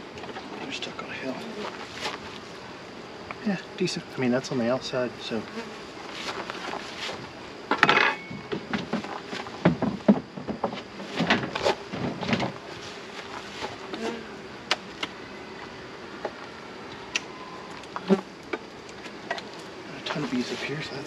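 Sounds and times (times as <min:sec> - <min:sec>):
hive frames knocking and scraping: 0:05.5 - 0:14.8.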